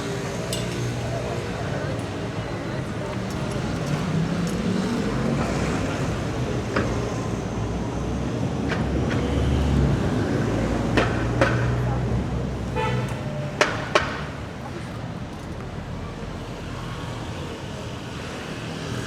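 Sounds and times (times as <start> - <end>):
vehicle engines rumbling: 0.0 - 19.0
car horn toot: 12.7 - 13.2.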